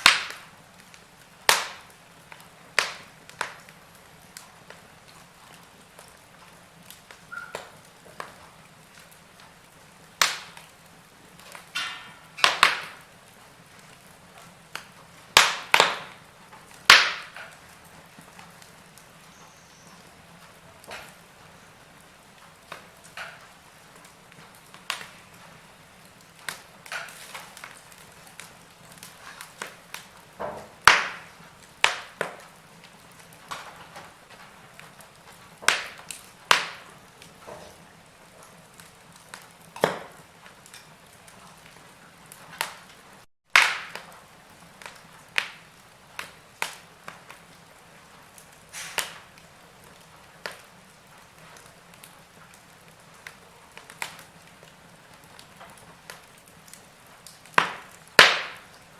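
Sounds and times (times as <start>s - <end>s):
faint steady hiss: 0.0s - 58.9s
wood fire crackling and popping: 0.0s - 58.9s.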